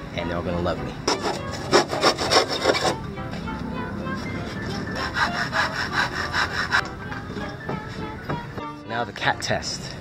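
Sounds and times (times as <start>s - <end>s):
saw cutting wood: 1.1s - 3.0s, 4.9s - 6.8s.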